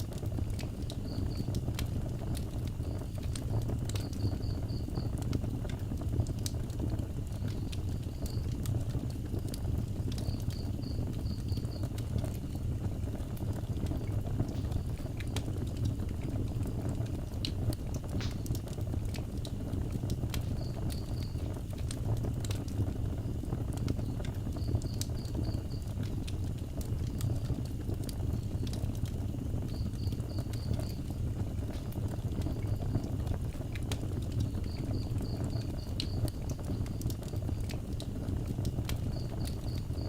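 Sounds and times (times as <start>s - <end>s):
fire crackling and popping: 0.0s - 40.0s
fire rumbling: 0.0s - 40.0s
insect chirping: 4.0s - 5.2s, 10.2s - 12.0s, 20.4s - 21.6s, 24.0s - 25.9s, 29.7s - 31.2s, 34.4s - 37.0s.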